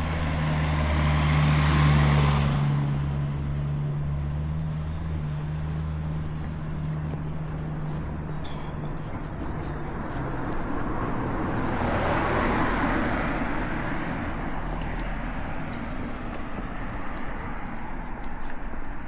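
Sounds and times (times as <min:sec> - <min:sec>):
street traffic hum: 0:00.0 - 0:19.0
vehicle passing: 0:00.0 - 0:19.0
light footsteps: 0:02.6 - 0:19.0.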